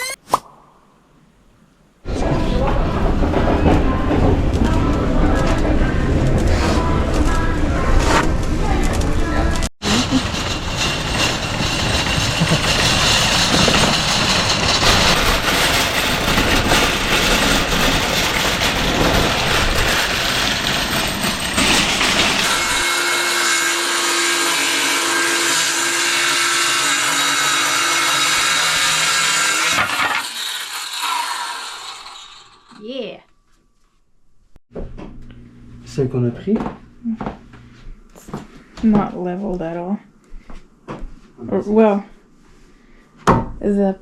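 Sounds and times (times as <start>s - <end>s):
power tools working wood: 9.8s - 32.8s
high-pitched tool whine: 20.6s - 32.9s.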